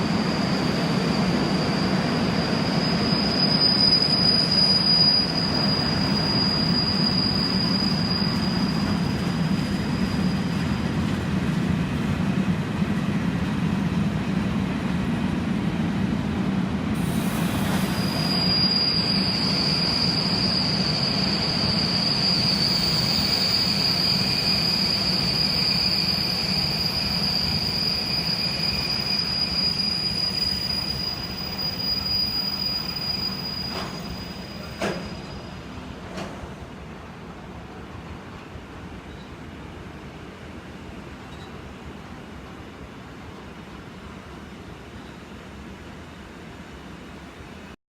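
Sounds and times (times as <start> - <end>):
high-pitched wheel squeal: 0.0 - 10.8, 17.6 - 35.7
train rolling along track: 0.0 - 47.8.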